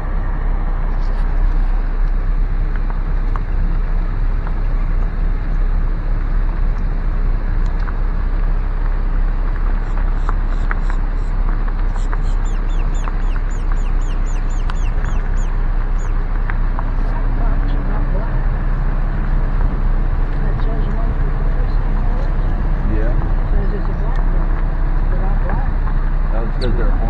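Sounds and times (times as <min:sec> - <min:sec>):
car rumble from inside cabin: 0:00.0 - 0:27.0
bird chirping: 0:09.8 - 0:27.0.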